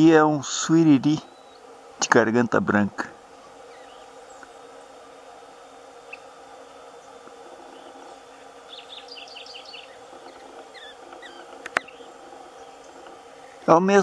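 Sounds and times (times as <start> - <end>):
steady low hum: 0.0 - 14.0
small bird chirping: 3.4 - 5.0, 6.0 - 6.4, 7.0 - 13.7.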